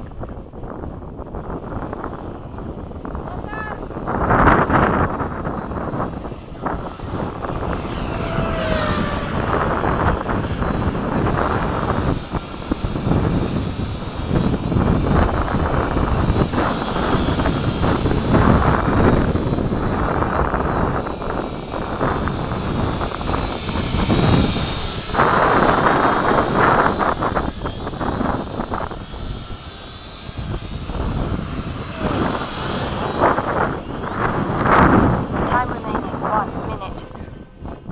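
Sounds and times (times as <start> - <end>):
model airplane motor whine: 0.0 - 37.9
wind on microphone: 0.0 - 37.9.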